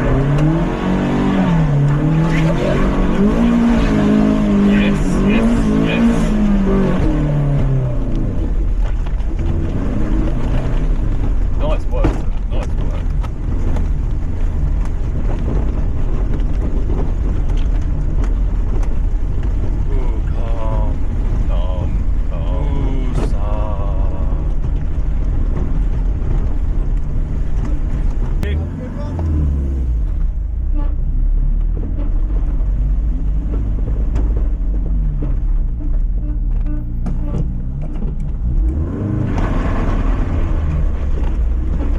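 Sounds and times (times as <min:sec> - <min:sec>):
engine and tyres rumbling: 0:00.0 - 0:41.9
knocks and clatter from car: 0:08.6 - 0:19.9, 0:24.5 - 0:28.4, 0:31.5 - 0:38.7.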